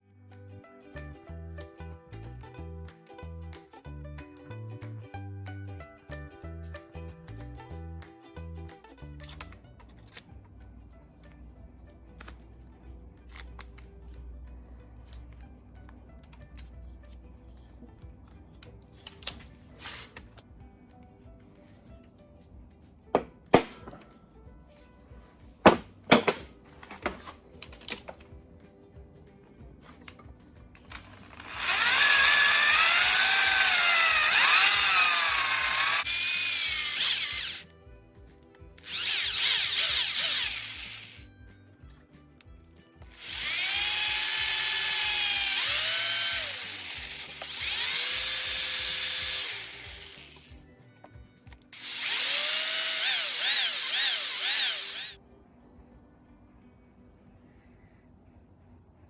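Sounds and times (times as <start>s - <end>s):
electric drill boring into steel: 30.9s - 37.6s, 38.8s - 41.2s, 43.1s - 50.6s, 51.8s - 55.2s.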